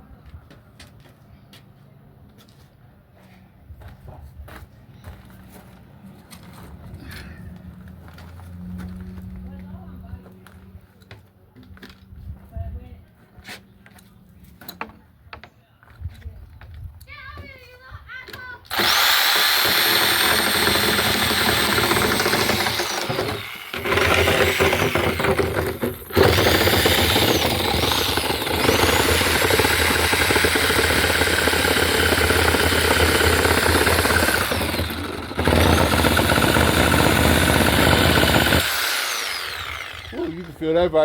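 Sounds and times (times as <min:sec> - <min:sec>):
power saw cutting wood: 0:18.7 - 0:41.0.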